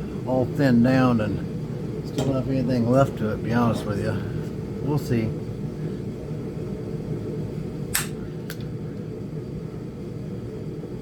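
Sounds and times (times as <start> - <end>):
sharp strikes on stone: 8.0 - 8.2.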